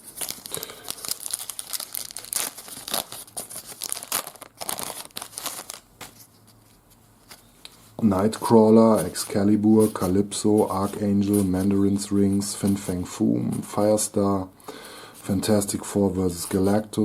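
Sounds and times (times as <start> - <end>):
wrapper being torn and crinkled: 0.0 - 5.9.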